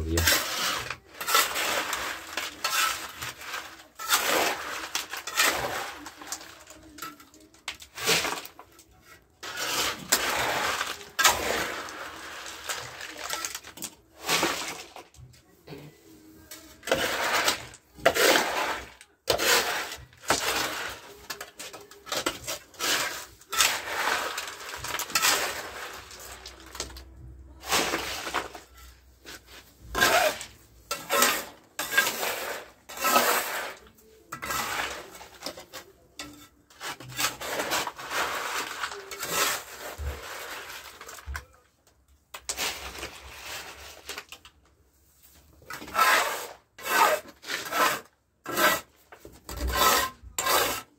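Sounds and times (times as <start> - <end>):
hand tool scraping rough material: 0.0 - 15.3, 16.6 - 27.0, 27.6 - 41.5, 45.6 - 50.9.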